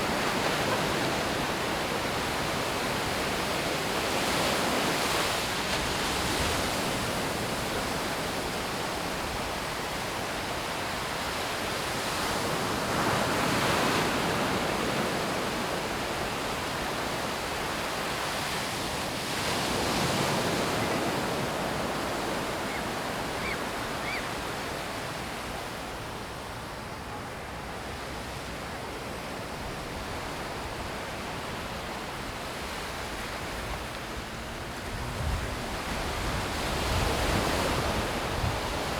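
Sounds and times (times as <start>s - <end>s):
waves breaking: 0.0s - 7.7s.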